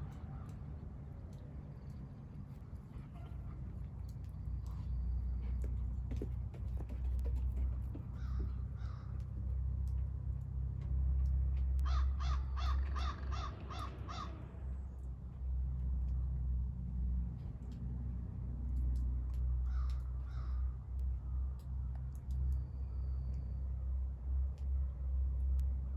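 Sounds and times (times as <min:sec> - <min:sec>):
crows cawing: 0:08.2 - 0:09.2, 0:11.8 - 0:14.6, 0:19.6 - 0:20.7.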